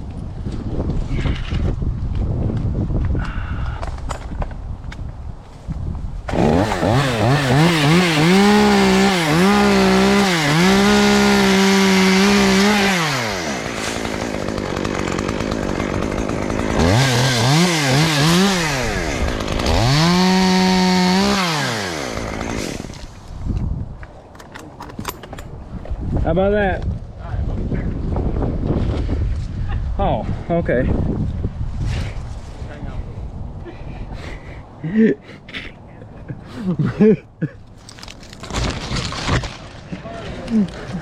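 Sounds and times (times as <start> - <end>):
chainsaw revving: 6.3 - 23.1.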